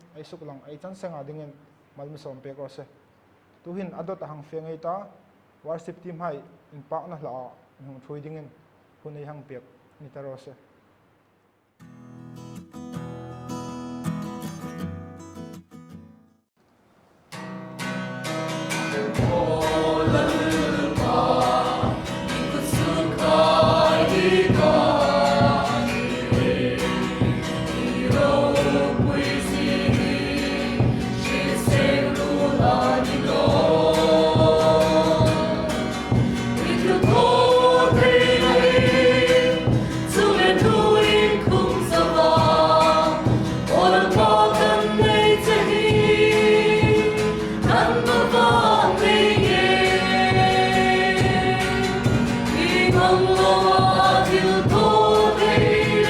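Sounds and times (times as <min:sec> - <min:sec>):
group singing a gospel hymn: 0:18.7 - 0:56.0
band accompaniment: 0:19.0 - 0:56.0.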